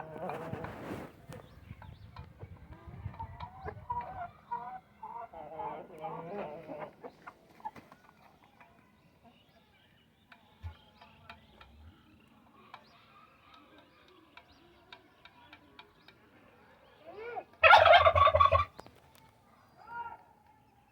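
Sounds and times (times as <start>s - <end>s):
turkey gobbling: 17.2s - 18.8s.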